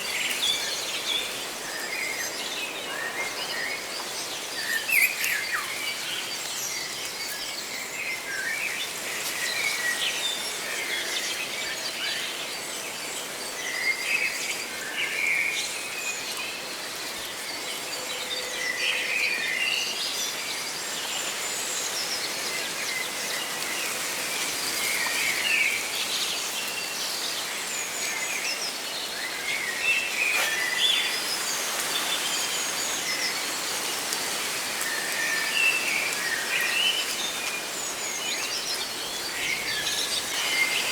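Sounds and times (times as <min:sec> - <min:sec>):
leaves rustling: 0:21.5 - 0:40.9.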